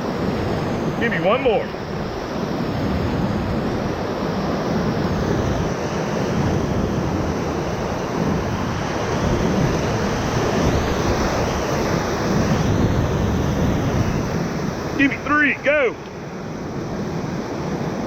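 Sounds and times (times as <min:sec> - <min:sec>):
whitewater rapids rushing: 0:06.9 - 0:18.0.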